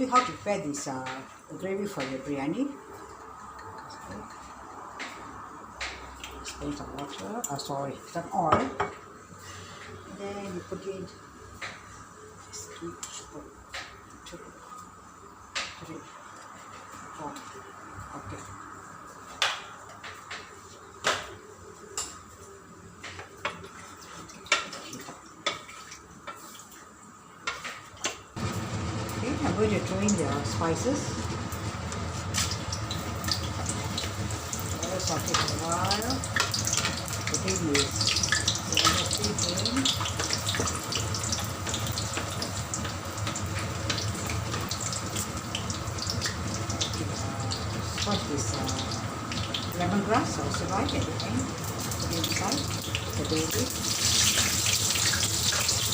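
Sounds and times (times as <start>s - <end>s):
spices sizzling in hot oil: 23.4s - 55.9s.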